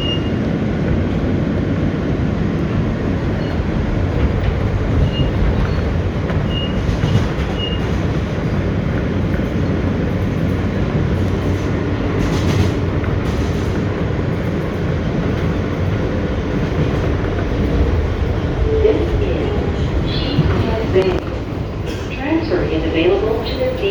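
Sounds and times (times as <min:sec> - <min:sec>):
subway train rumbling on track: 0:00.0 - 0:23.9
train wheel clicks: 0:04.1 - 0:18.4.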